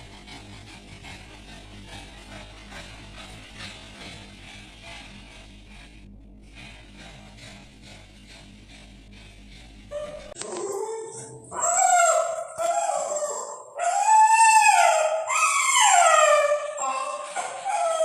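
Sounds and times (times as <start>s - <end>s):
puppy howling and whining: 9.9s - 18.0s.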